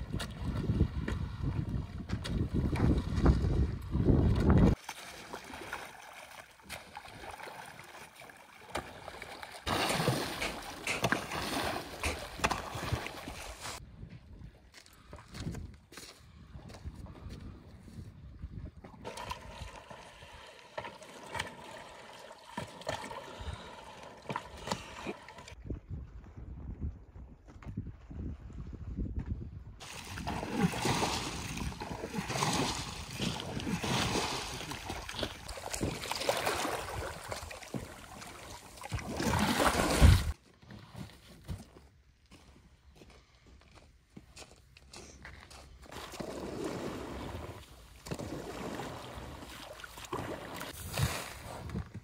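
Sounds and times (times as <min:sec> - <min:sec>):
water running and splashing: 0:04.4 - 0:13.8, 0:19.0 - 0:25.6, 0:29.8 - 0:40.4.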